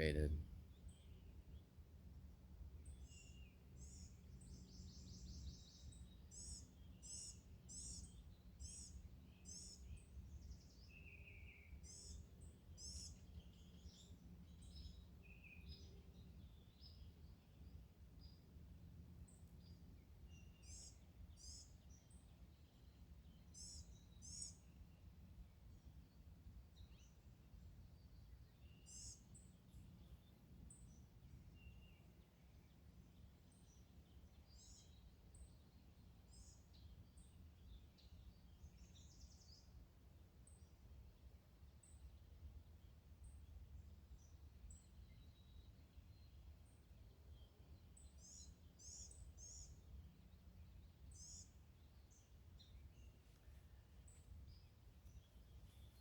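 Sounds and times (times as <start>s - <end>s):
faint bird chirps: 19.3s - 25.0s, 27.9s - 32.1s, 44.2s - 56.0s.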